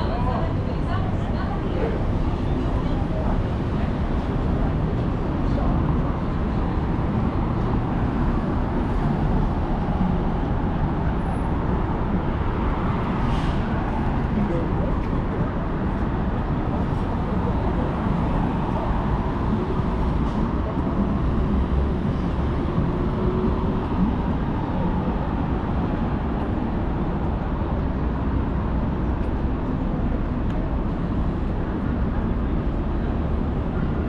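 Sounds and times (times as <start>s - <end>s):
low rumble of passing traffic: 0.0s - 34.0s.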